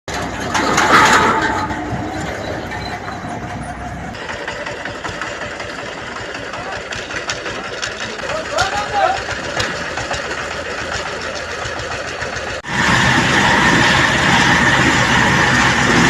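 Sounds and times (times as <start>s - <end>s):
machinery engine rumble: 0.1s - 16.0s
mechanical clatter with ticks: 4.1s - 12.6s.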